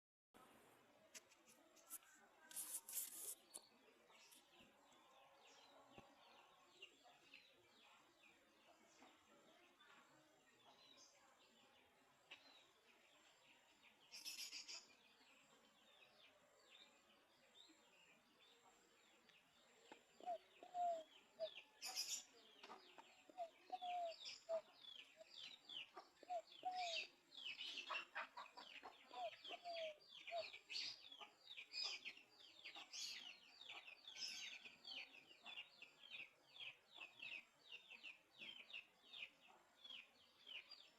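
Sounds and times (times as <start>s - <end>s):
small birds chirping: 1.0s - 40.9s
dove cooing: 20.2s - 21.0s, 23.3s - 24.6s, 26.2s - 27.1s, 29.1s - 30.4s.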